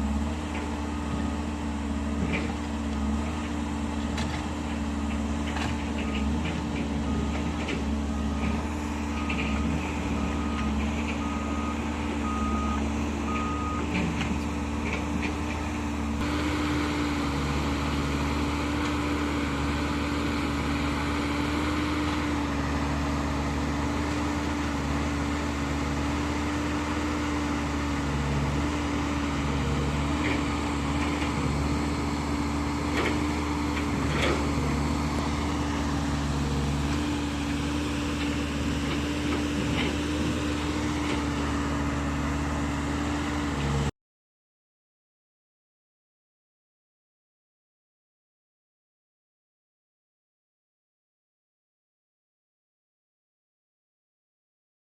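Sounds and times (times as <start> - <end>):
heavy diesel machinery running: 0.0 - 43.9
reversing alarm beeping: 9.2 - 13.9.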